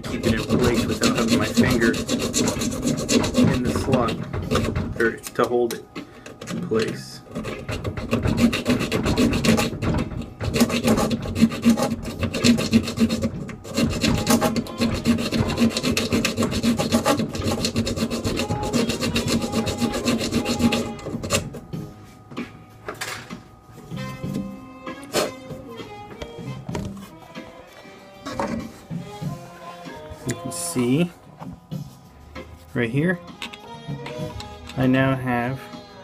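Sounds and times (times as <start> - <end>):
hacksaw rasping on metal: 0.0 - 5.2, 7.3 - 21.6, 25.1 - 25.4.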